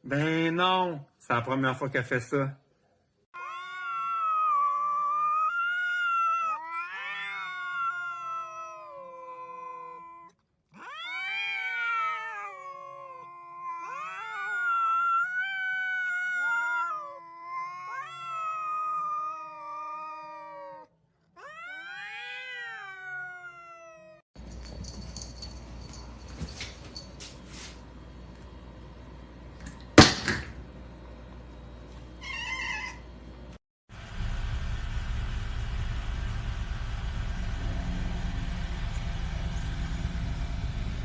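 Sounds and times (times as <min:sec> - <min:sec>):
cat yowling: 0:03.4 - 0:24.2, 0:32.2 - 0:33.0.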